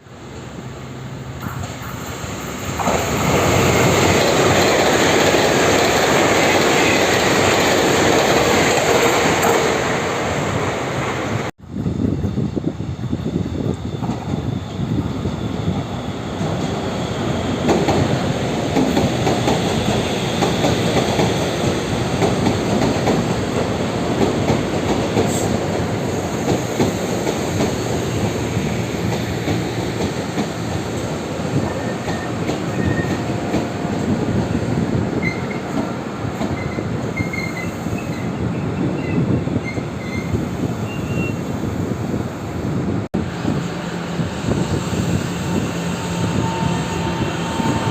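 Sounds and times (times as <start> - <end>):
electric train slowing to a stop: 0.1 - 47.9
brake and wheel squeals: 31.6 - 33.2, 35.2 - 35.7, 36.5 - 41.5.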